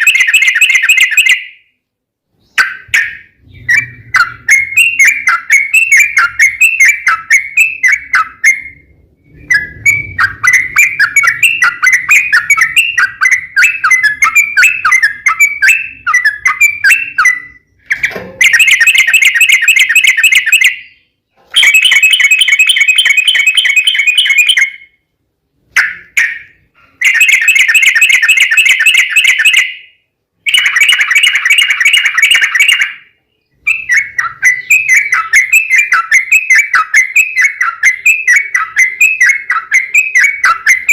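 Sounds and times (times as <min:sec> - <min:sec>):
bulbul song with trills: 0:00.0 - 0:40.9.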